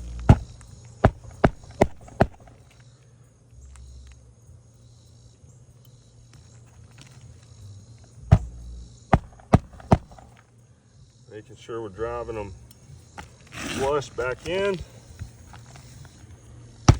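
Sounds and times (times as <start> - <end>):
hammer striking nails: 0.0 - 2.6, 8.3 - 8.6, 9.2 - 10.3.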